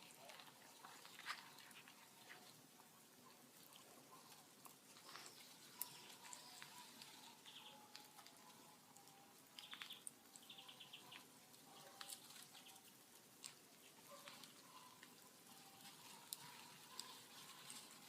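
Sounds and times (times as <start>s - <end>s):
bonfire crackling and popping: 4.6s - 18.0s.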